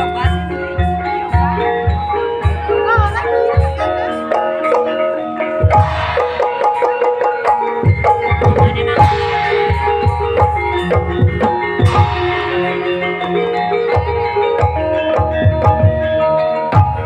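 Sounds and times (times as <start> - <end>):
gamelan keys melody: 0.0 - 17.0
low hand-drum strokes: 8.0 - 13.1.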